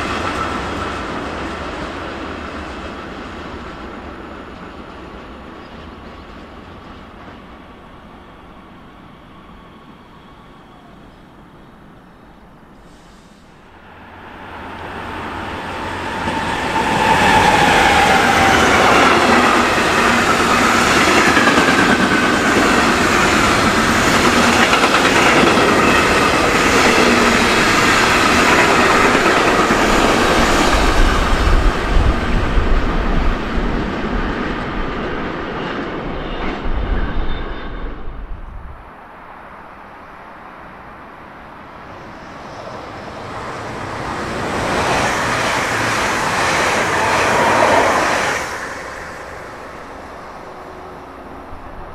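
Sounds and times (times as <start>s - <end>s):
train wheels clattering over rails: 14.9s - 33.4s.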